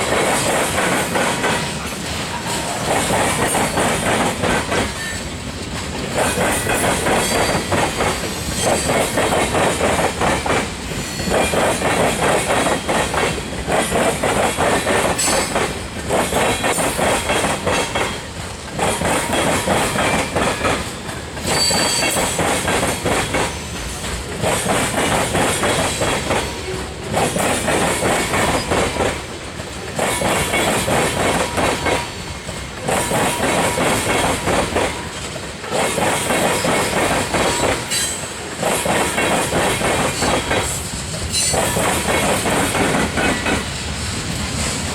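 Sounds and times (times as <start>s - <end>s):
train wheels clattering over rails: 0.0s - 44.9s.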